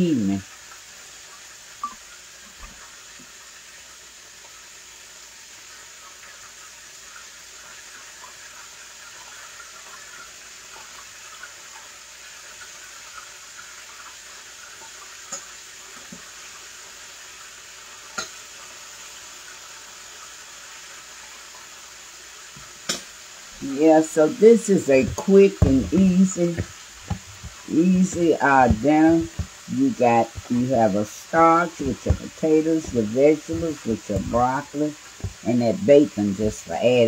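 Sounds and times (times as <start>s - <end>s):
chicken frying in oil: 0.0s - 37.0s
sharp knocks: 25.0s - 30.5s.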